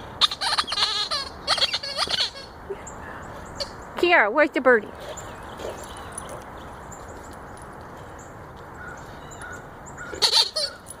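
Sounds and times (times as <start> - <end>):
birds chirping: 0.0 - 11.0
steady outdoor hiss: 0.0 - 11.0.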